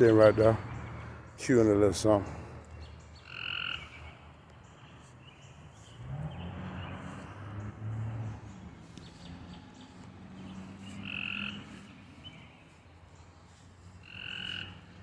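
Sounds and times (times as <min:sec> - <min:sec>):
low frog croaks: 0:03.2 - 0:04.0, 0:11.0 - 0:11.6, 0:14.0 - 0:14.9.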